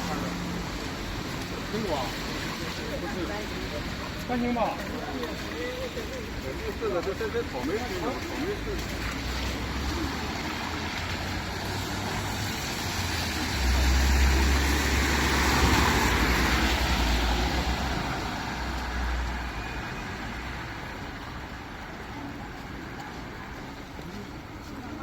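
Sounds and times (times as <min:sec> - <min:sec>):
motor vehicle passing by: 0:08.2 - 0:19.5.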